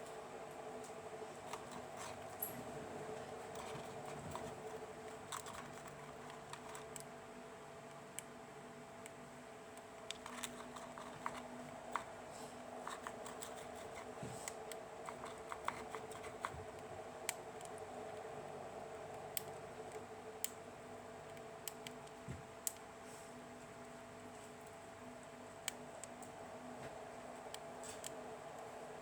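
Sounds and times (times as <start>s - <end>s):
faint hum: 0.0s - 29.0s.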